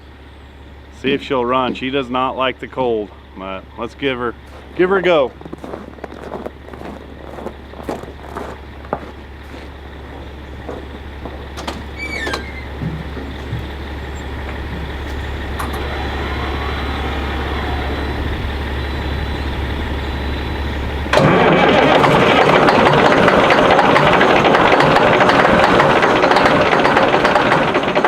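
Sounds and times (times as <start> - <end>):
low steady hum: 0.0 - 21.5
diesel truck engine running loud: 0.0 - 28.0
brief squeal: 11.9 - 12.8.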